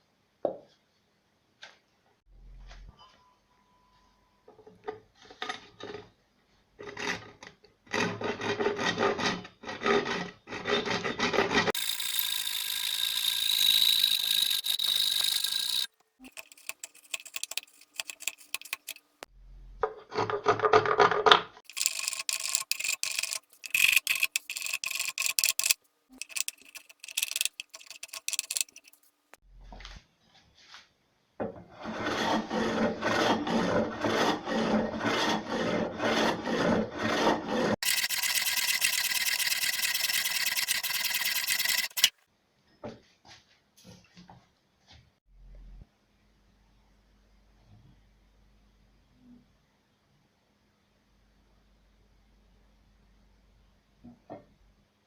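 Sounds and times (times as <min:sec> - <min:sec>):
rasping and sawing wood: 0:06.8 - 0:19.0, 0:21.7 - 0:29.0, 0:31.7 - 0:42.1.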